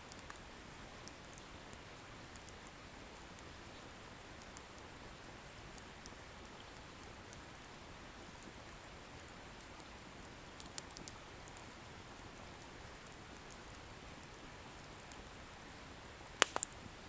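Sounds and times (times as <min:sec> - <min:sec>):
wood crackling and popping: 0:08.3 - 0:17.0
bonfire hissing: 0:16.3 - 0:17.0.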